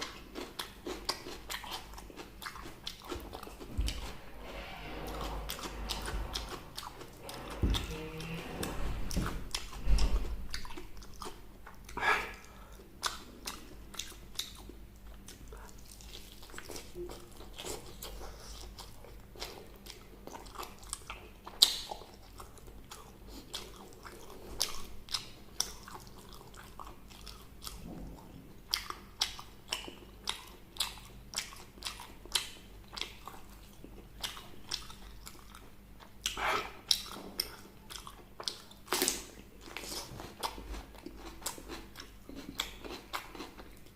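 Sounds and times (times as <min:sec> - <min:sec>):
wet chewing: 0:00.0 - 0:04.2, 0:28.7 - 0:43.9.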